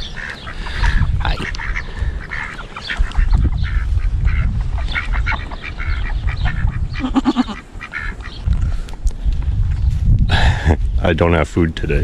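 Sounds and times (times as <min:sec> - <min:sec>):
farm animals honking: 0:00.0 - 0:08.4.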